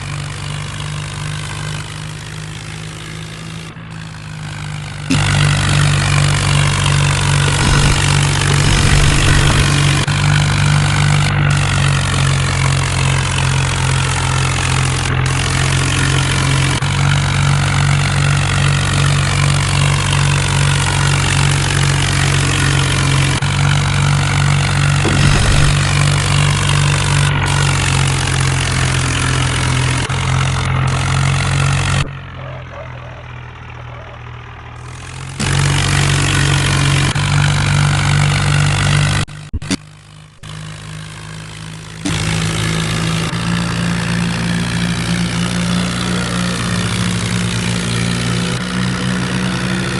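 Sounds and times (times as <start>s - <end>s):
tractor engine running: 0.0s - 49.9s
loud even rush of noise: 7.5s - 10.0s, 25.0s - 26.0s.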